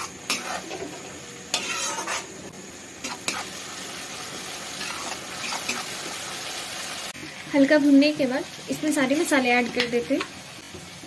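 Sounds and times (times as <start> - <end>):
metal spoon scraping a pan: 0.0 - 3.6, 4.8 - 6.0
masala sizzling in a pan: 0.0 - 11.0.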